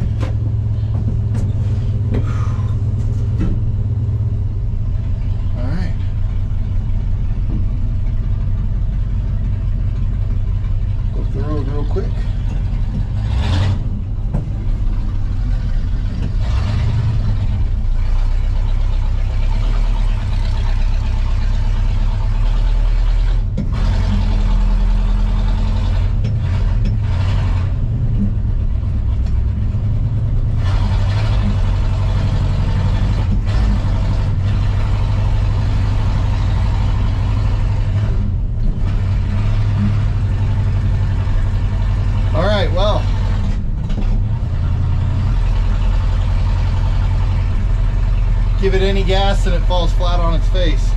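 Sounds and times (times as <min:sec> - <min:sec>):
road noise: 0:00.0 - 0:50.9
truck engine droning: 0:00.0 - 0:50.9.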